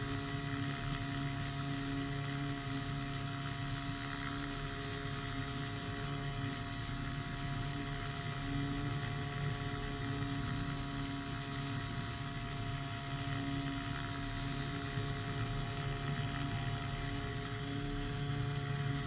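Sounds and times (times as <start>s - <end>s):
small engine droning: 0.0s - 19.0s.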